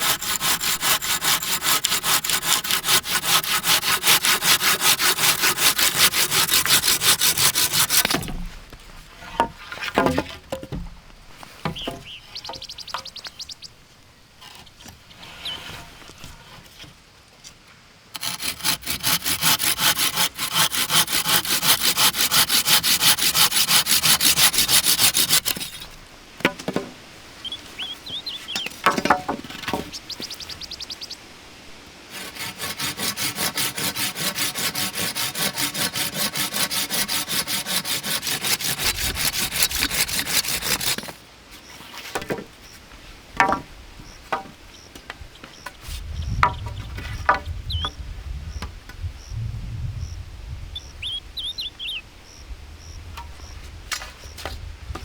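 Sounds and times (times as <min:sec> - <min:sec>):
hand saw cutting wood: 0:00.0 - 0:08.5, 0:18.1 - 0:26.0, 0:28.5 - 0:30.0, 0:32.1 - 0:41.2.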